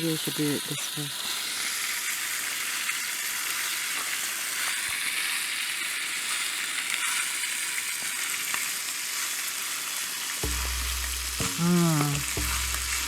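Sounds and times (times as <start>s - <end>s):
meat sizzling in a skillet: 0.0s - 13.0s.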